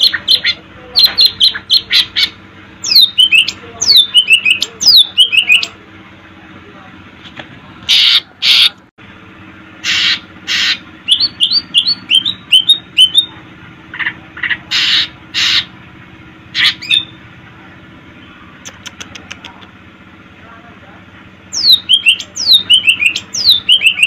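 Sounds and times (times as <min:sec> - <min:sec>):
bird singing: 0:00.0 - 0:05.8, 0:09.8 - 0:15.7, 0:16.5 - 0:17.3, 0:18.1 - 0:19.0, 0:21.5 - 0:24.0
steady low hum: 0:00.0 - 0:24.0.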